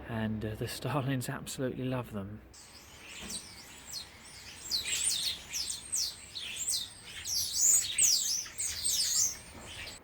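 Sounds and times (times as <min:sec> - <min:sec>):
songbirds singing: 0:02.6 - 0:10.0.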